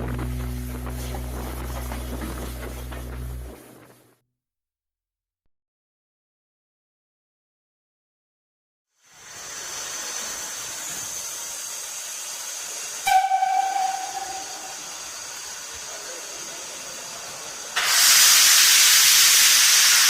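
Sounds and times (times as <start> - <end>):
steam locomotive hissing: 0.0 - 4.0, 9.0 - 20.0
rush of escaping steam: 9.0 - 20.0.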